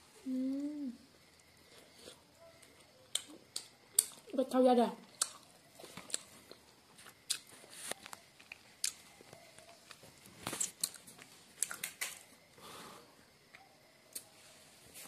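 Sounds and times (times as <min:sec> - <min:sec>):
person chewing with wet mouth smacks: 0:02.0 - 0:04.3, 0:05.0 - 0:07.5.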